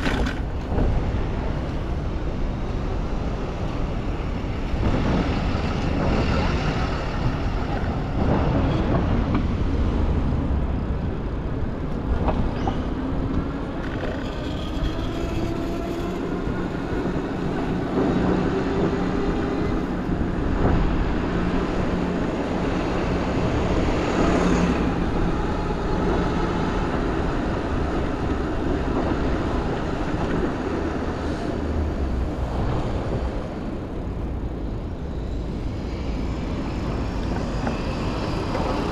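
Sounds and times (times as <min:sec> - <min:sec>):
street traffic: 0:00.0 - 0:38.9
wind rumbling on microphone: 0:00.0 - 0:38.9.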